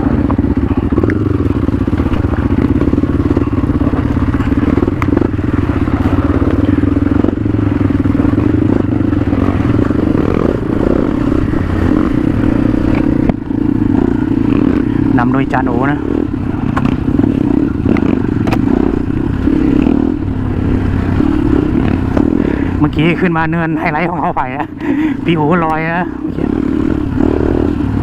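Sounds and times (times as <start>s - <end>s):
motorcycle engine running: 0.0s - 28.0s
knocks and rattles: 1.7s - 14.6s.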